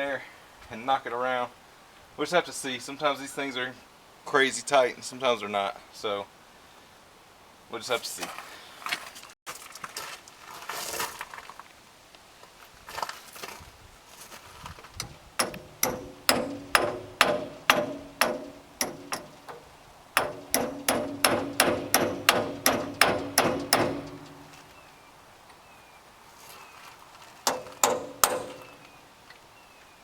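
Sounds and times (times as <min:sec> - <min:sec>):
hammer striking metal: 0:15.4 - 0:24.6, 0:27.5 - 0:28.8.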